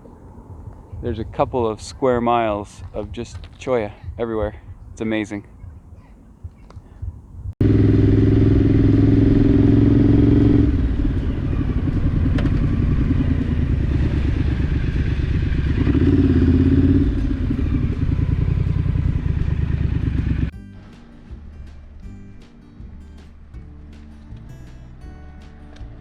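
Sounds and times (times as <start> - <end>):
motorcycle engine running: 6.4 - 22.1.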